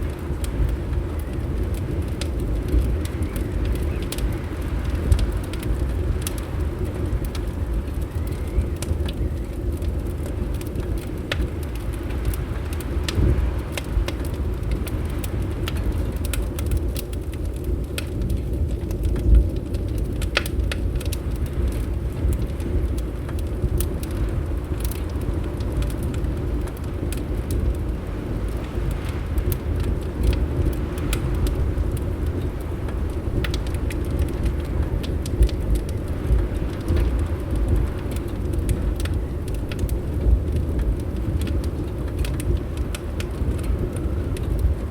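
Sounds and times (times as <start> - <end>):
low rumble of wind: 0.0 - 44.9
wood fire crackling: 0.0 - 44.9.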